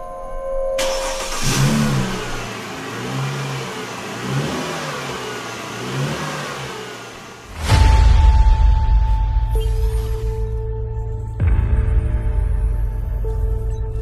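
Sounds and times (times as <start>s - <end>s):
car engine starting and revving: 0.8s - 8.0s.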